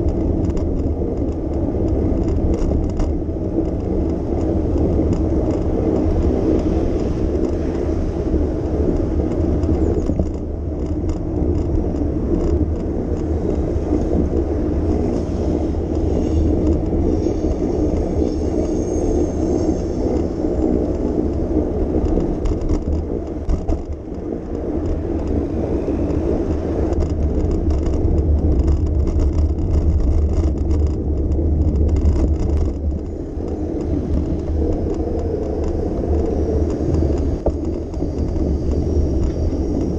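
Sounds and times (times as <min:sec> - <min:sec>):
bicycle riding rumble: 0:00.0 - 0:39.9
road traffic: 0:00.0 - 0:39.9
wind on microphone: 0:00.0 - 0:39.9.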